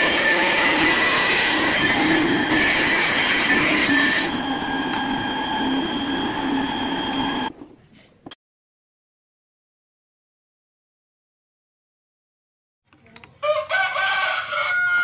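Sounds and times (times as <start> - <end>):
saw blade screeching: 0.0 - 7.5
table saw motor whining: 0.0 - 7.5.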